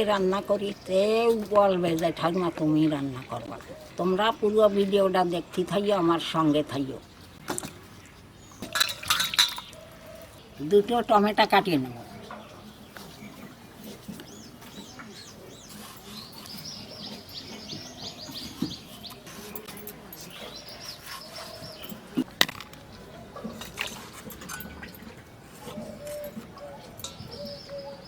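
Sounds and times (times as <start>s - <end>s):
small birds chirping: 0.0s - 24.0s, 24.8s - 28.0s.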